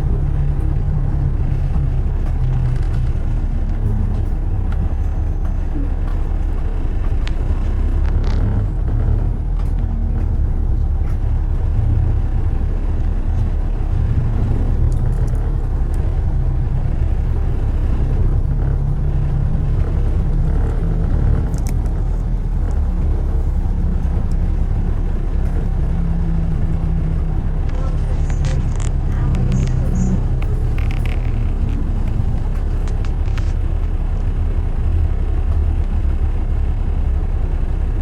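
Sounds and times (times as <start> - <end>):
road and engine rumble: 0.0 - 38.0
faint clicks: 9.6 - 37.8.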